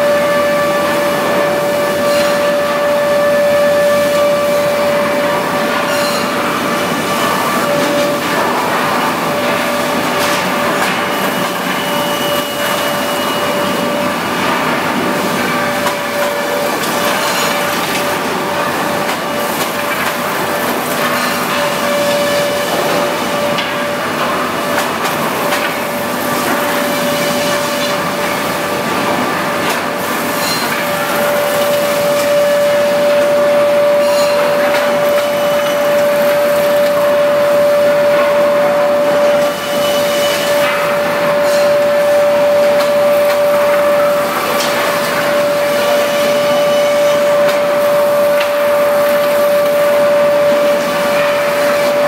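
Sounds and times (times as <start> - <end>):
wood planer running: 12.2 - 52.0.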